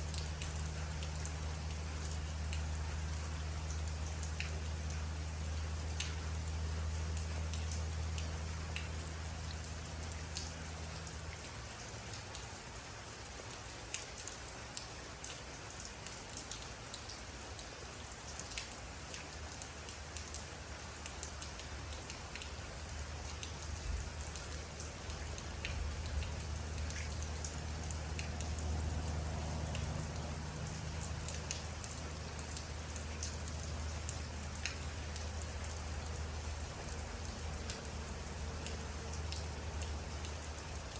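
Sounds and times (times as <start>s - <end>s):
low steady hum: 0.0s - 15.8s, 17.3s - 40.9s
rain: 0.0s - 40.9s
raindrops ticking on a surface: 0.0s - 40.9s.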